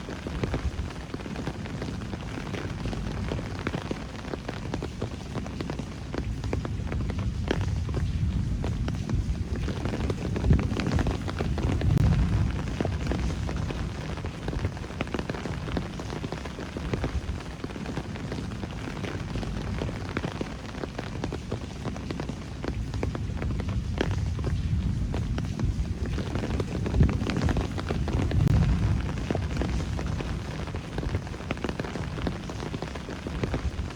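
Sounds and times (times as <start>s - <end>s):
rain falling: 0.0s - 33.9s
low rumble: 6.7s - 16.0s, 22.7s - 32.4s.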